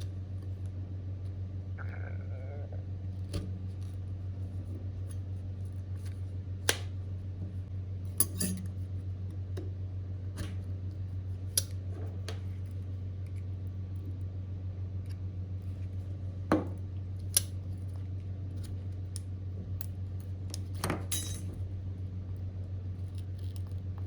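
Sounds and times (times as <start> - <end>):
steady low hum: 0.0 - 24.0
small metal tools clicking and tapping: 8.2 - 8.7, 20.5 - 21.5.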